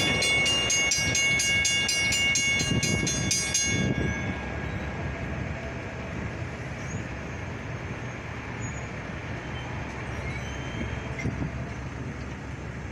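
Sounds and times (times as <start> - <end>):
train rumbling: 0.0 - 12.9.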